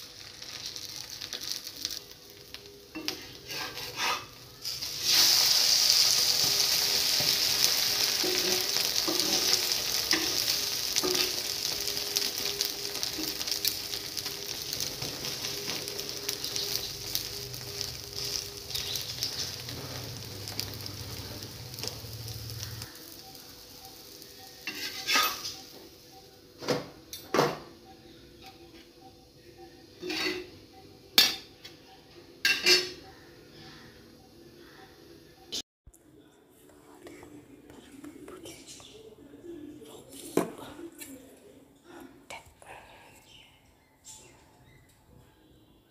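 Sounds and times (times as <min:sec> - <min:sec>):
omelette sizzling: 0:00.0 - 0:26.5
spatula scraping pan: 0:03.0 - 0:04.8, 0:24.6 - 0:25.6
spatula clanking on pan: 0:08.2 - 0:11.5.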